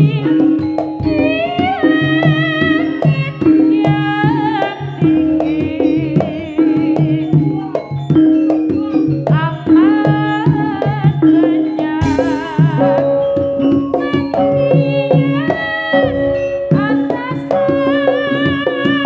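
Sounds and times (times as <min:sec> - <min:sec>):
repeating low gong note: 0:12.0 - 0:13.7
high wavering melody: 0:12.0 - 0:14.3
hand drum strokes: 0:12.0 - 0:15.6.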